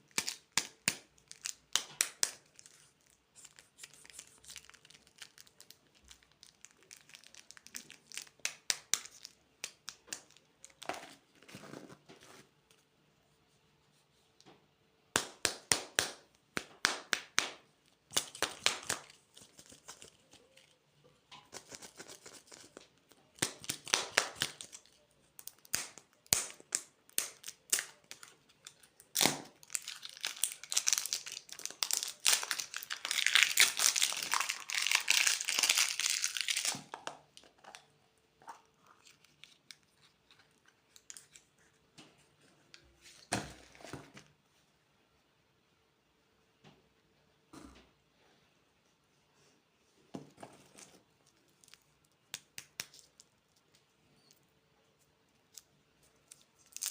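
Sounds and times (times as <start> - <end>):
plastic wrappers crinkling: 0.1 - 12.1, 27.1 - 37.9, 55.5 - 56.9.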